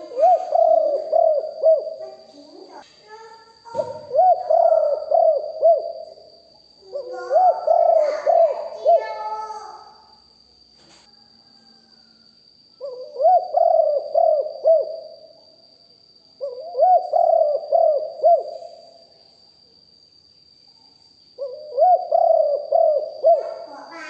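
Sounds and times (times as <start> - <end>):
dove cooing: 0.0 - 2.8, 3.6 - 9.7, 12.8 - 15.2, 16.4 - 18.9, 21.4 - 24.0.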